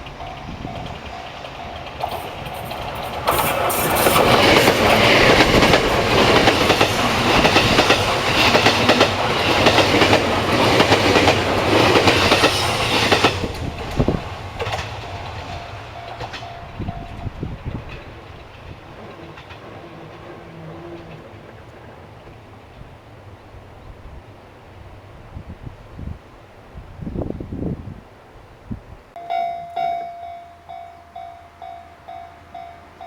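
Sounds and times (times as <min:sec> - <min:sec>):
train wheels clattering: 0:00.0 - 0:23.0.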